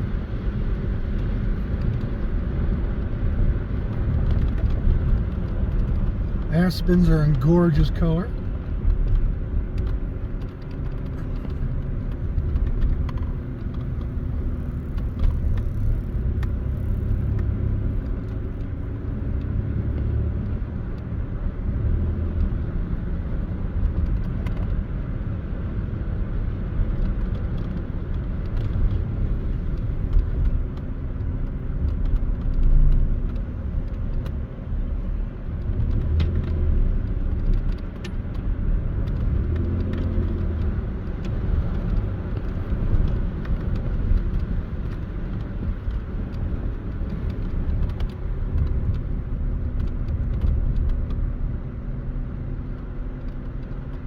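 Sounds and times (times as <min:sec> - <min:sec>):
car engine and tyres rumbling: 0:00.0 - 0:54.0
faint clicks and rattles: 0:26.9 - 0:51.3, 0:52.5 - 0:54.0.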